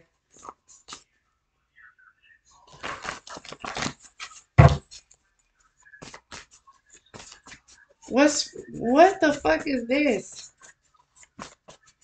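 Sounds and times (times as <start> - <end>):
cards being shuffled: 2.7 - 5.1, 6.0 - 7.7, 10.4 - 12.0
deck knocked on table: 4.6 - 4.8.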